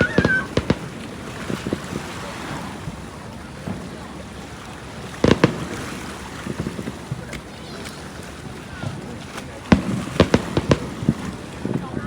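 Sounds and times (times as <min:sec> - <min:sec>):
fireworks popping: 0:00.0 - 0:02.0, 0:04.9 - 0:07.5, 0:09.6 - 0:12.0
fireworks bangs: 0:00.0 - 0:07.4, 0:08.8 - 0:12.0
wind and waves rushing: 0:00.0 - 0:12.0.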